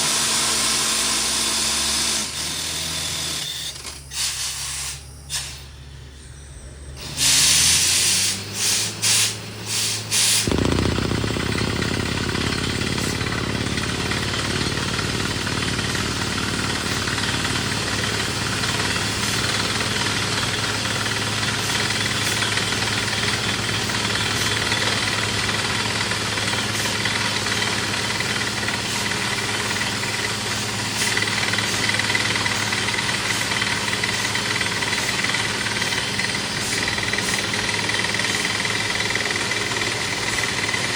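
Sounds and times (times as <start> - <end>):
drilling rig engine running: 4.9 - 40.9
high whine: 5.2 - 7.8, 10.4 - 18.0
air hiss blasts: 7.2 - 11.6.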